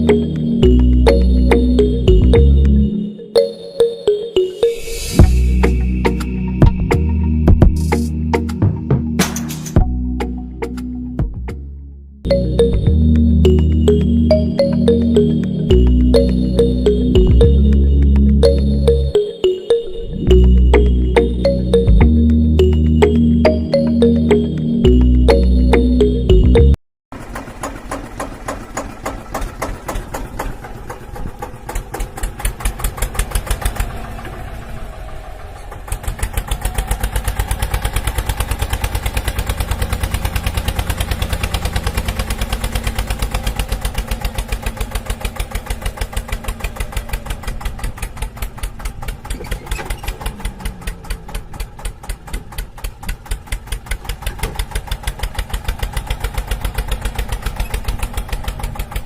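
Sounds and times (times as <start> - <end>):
small tractor engine pulsing: 0.0 - 9.2, 12.3 - 59.0.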